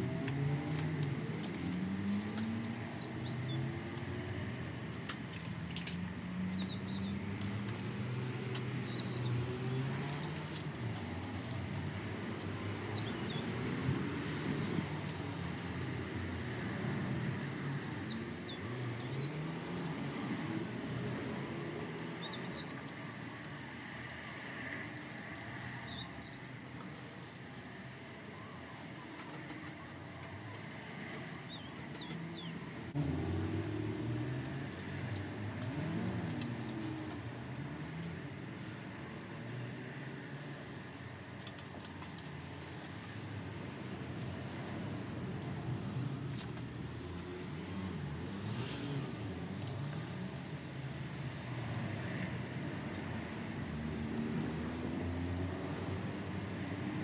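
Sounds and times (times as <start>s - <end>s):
small birds chirping: 0.3s - 4.4s, 5.2s - 21.2s, 21.8s - 56.9s.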